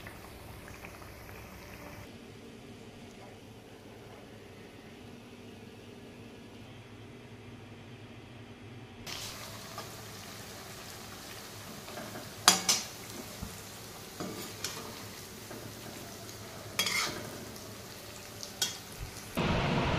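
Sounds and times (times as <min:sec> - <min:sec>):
dough sizzling in hot oil: 0:00.0 - 0:02.1, 0:09.1 - 0:19.5
metal spoon scraping a wok: 0:16.7 - 0:17.3.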